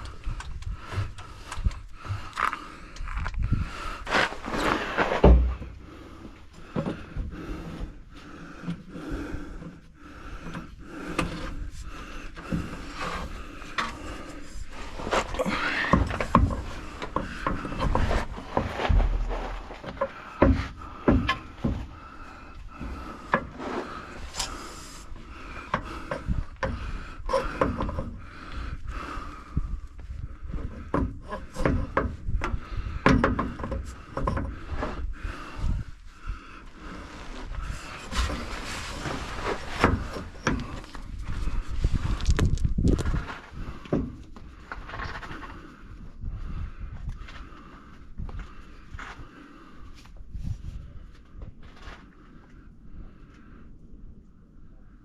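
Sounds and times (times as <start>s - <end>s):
knocks and clunks under vehicle: 0.0s - 9.3s, 12.3s - 23.9s, 25.4s - 35.9s, 37.5s - 45.6s.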